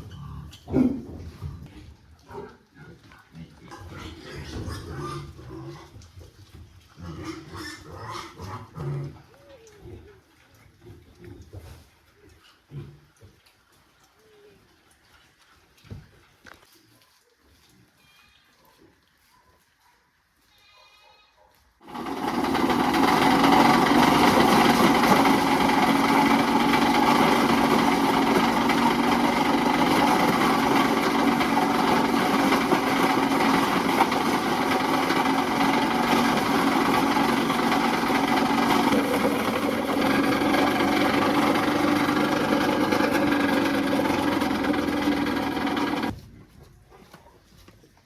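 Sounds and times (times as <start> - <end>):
motor-driven machine humming: 21.8 - 46.1.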